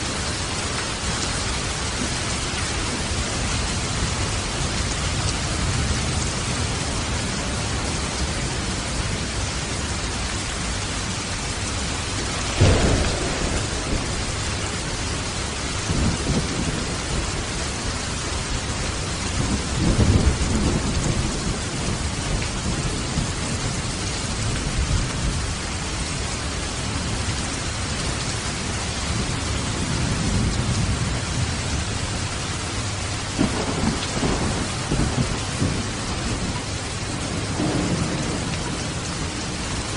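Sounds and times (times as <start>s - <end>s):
rain hissing: 0.0s - 39.9s
thunder rumbling: 11.0s - 27.5s, 28.9s - 39.9s.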